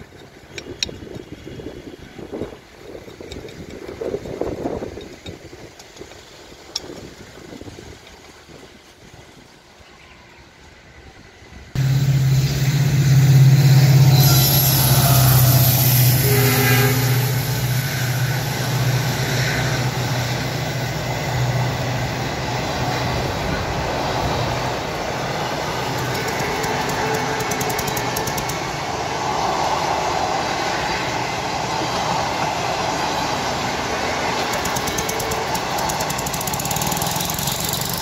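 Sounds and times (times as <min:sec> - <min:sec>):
train wheels on rails: 0:00.0 - 0:09.8, 0:10.6 - 0:38.0
low hum: 0:11.8 - 0:21.3.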